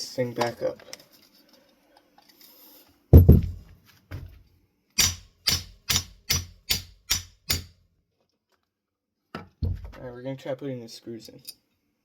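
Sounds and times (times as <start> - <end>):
heavy thud: 3.2 - 4.3.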